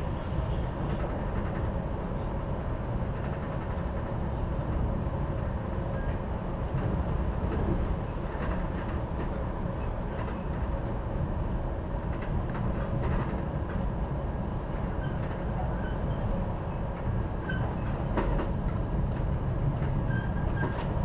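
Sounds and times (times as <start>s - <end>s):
train rumbling at speed: 0.0s - 21.0s.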